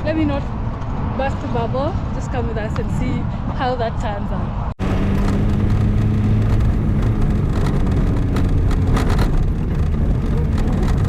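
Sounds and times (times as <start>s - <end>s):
vehicle engine running: 4.8s - 11.0s
knocks and rattles: 5.0s - 11.0s.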